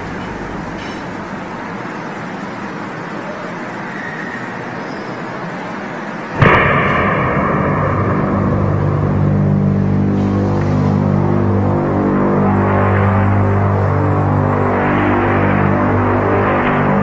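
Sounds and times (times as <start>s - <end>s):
steady background noise: 0.0s - 17.0s
held tones high and droning: 6.4s - 17.0s.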